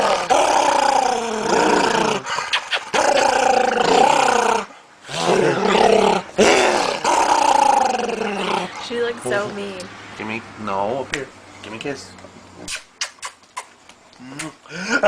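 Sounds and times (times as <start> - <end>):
dog growling moans: 0.0 - 9.7.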